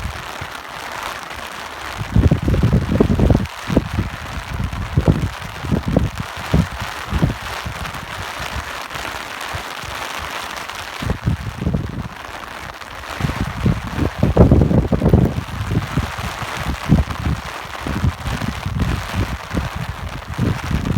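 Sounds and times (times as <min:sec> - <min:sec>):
rain hissing: 0:00.0 - 0:20.9
wind buffeting microphone: 0:01.9 - 0:09.9, 0:10.7 - 0:20.9.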